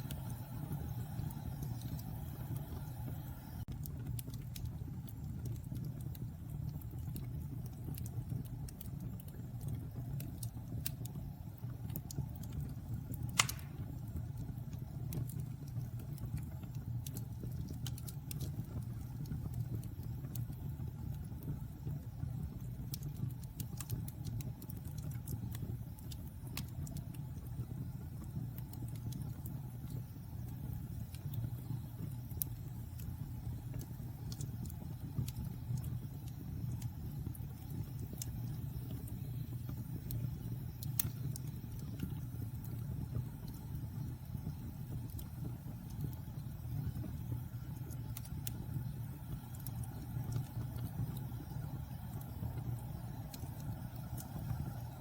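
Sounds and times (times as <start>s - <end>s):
fire crackling: 0.0s - 55.0s
fire flames rumbling: 0.0s - 55.0s.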